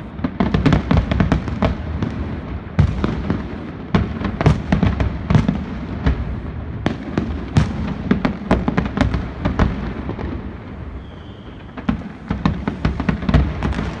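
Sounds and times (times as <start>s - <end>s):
fireworks bangs and cracks: 0.0s - 14.0s
faint firework whistle: 9.9s - 14.0s.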